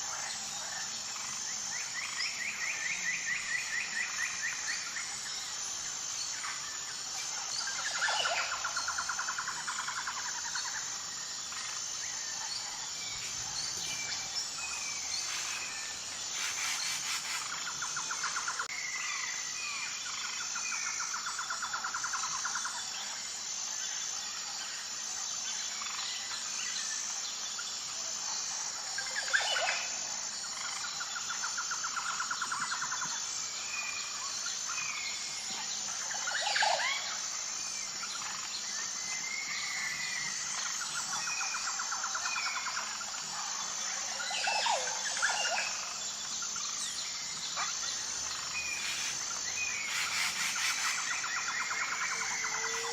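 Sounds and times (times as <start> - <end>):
rapid bird trill: 13.1 - 18.7, 47.6 - 52.9
bird chirps: 47.4 - 52.9.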